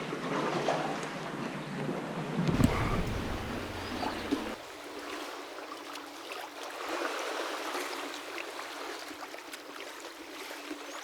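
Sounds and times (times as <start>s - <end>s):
water drips and splashes: 2.5s - 11.0s
water sloshing around kayak: 2.5s - 11.0s.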